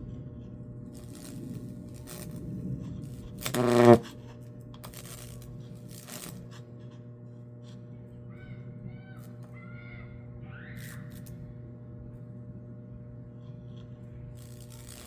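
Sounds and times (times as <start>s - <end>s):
faint electrical crackling: 0.0s - 8.0s, 12.2s - 15.0s
transformer humming: 0.0s - 15.0s
loud electrical arc buzz: 0.9s - 6.6s, 14.2s - 15.0s.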